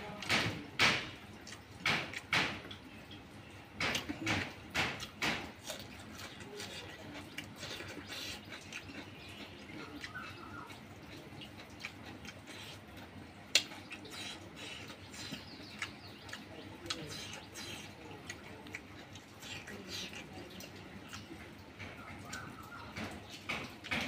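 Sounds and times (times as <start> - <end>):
person chewing and lip-smacking: 1.3 - 2.8, 3.8 - 24.0.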